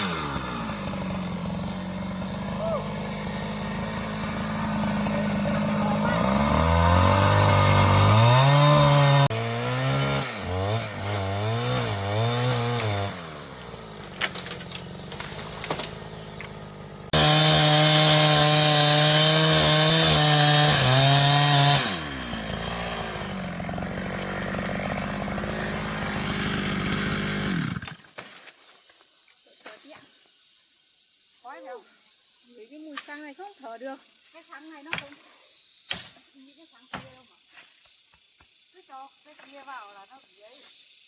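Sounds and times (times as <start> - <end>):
chainsaw cutting wood: 0.0 - 28.5.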